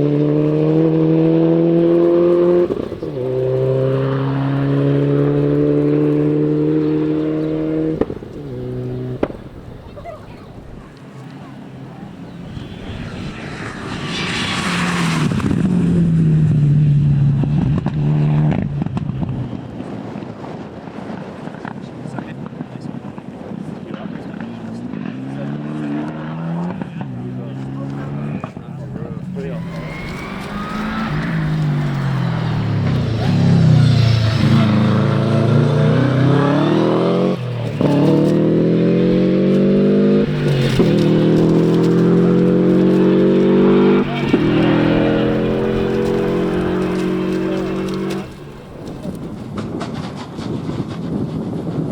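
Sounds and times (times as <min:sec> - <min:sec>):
rally car engine droning: 0:00.0 - 0:09.7, 0:24.0 - 0:51.8
rushing noise: 0:11.5 - 0:17.5, 0:29.2 - 0:51.2.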